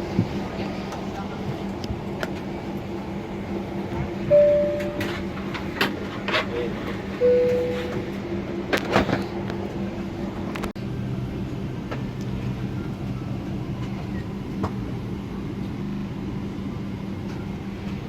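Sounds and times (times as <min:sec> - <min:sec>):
cabin air system hum: 0:01.2 - 0:18.0.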